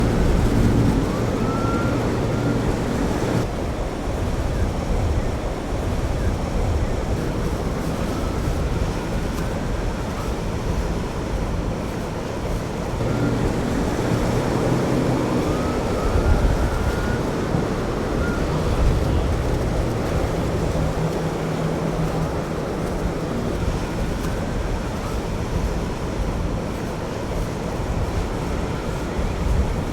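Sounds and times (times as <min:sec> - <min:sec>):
faint rising tones: 0:00.0 - 0:03.4
surf breaking: 0:00.0 - 0:03.5, 0:13.0 - 0:29.9
boat engines rumbling: 0:00.0 - 0:29.9.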